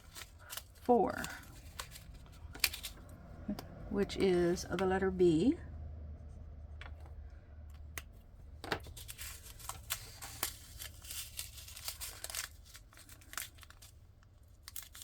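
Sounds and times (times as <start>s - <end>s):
plastic packets clicking and crinkling: 0.0s - 3.2s, 7.7s - 15.0s.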